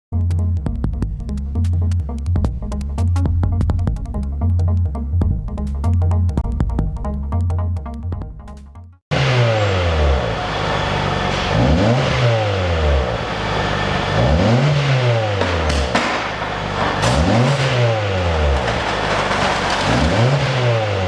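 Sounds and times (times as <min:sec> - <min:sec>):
car engine revving: 0:09.1 - 0:21.0.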